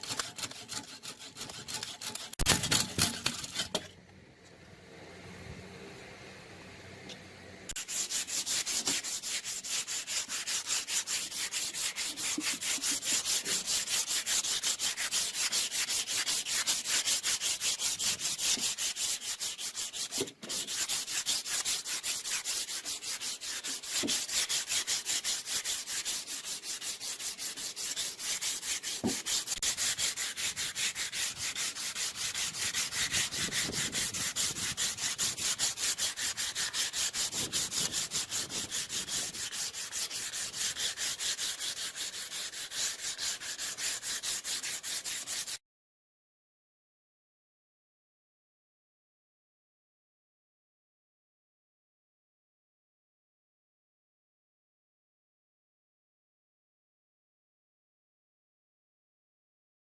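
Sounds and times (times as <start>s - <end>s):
sandpaper rubbing: 0.0s - 3.8s, 7.7s - 45.6s.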